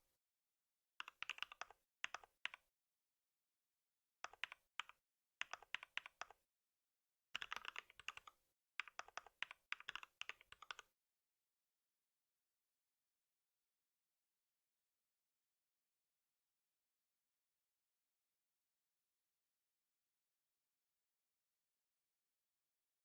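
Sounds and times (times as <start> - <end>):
typing on computer keyboard: 1.0 - 2.6, 4.2 - 6.4, 7.4 - 10.9.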